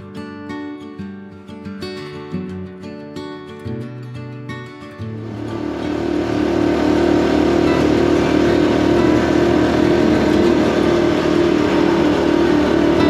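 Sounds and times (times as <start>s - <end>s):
motorcycle engine running: 5.2s - 13.0s.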